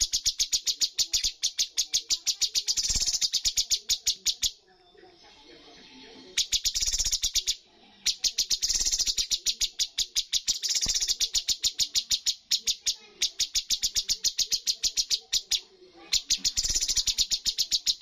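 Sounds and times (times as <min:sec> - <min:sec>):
songbird chirping and trilling: 0:00.0 - 0:18.0.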